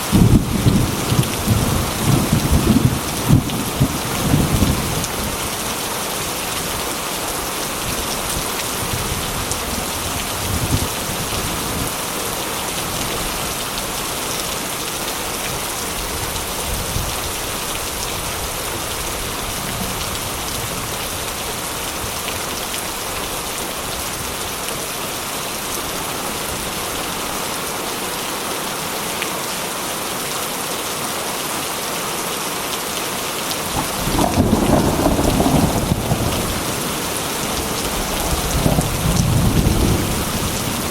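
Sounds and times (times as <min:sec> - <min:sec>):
heavy rain falling: 0:00.0 - 0:40.9
rolling thunder rumbles: 0:00.1 - 0:05.5, 0:33.6 - 0:40.9.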